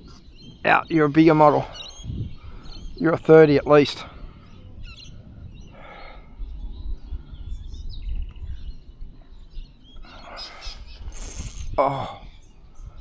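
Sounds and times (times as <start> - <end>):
birds chirping: 0.0 - 13.0
steady low rumble: 4.1 - 8.6
short rush of noise: 11.0 - 11.8.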